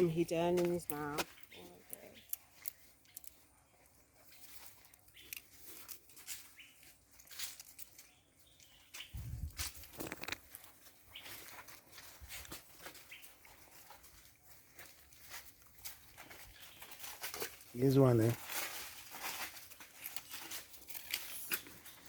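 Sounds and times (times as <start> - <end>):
small clicks and ticks: 0.6 - 3.4, 4.6 - 6.4, 7.2 - 10.8.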